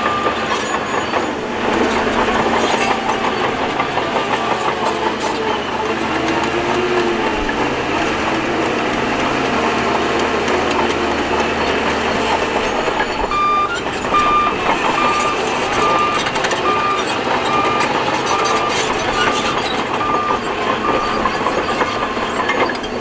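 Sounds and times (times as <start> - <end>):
reversing alarm beeping: 0.0 - 22.9
bulldozer engine rumbling: 0.0 - 23.0.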